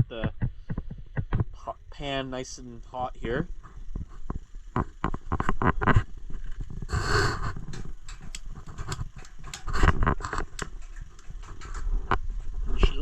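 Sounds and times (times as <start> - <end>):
burner hissing: 1.6 - 13.0
camp stove clicks and knocks: 7.4 - 12.2.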